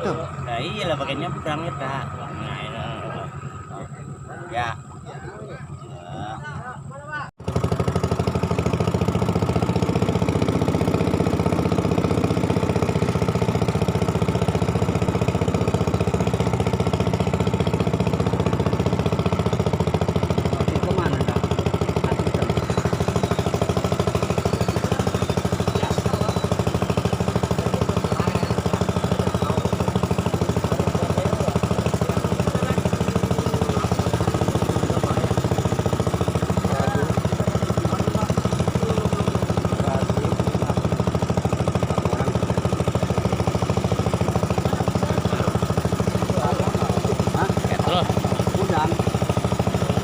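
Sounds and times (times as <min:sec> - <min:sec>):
boat engine running: 0:00.0 - 0:50.0.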